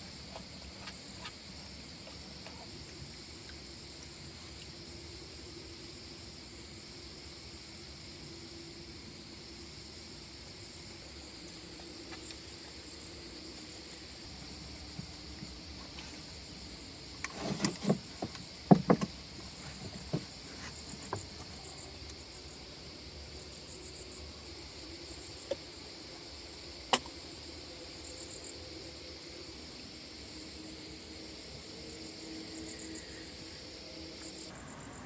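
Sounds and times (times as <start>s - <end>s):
insects chirping: 0.0s - 35.0s
sharp knocks and taps: 17.5s - 19.2s.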